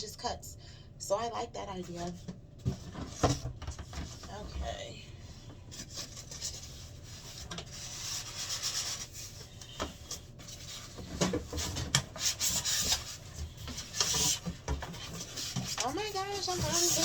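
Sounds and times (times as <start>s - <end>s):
cardboard rubbing and scraping: 5.7s - 9.4s, 10.1s - 17.0s.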